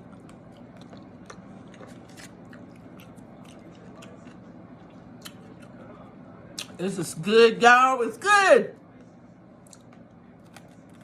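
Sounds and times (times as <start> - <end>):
chewing with wet mouth clicks: 0.0 - 5.8, 6.6 - 6.8, 9.6 - 11.0
low steady hum: 0.0 - 11.0.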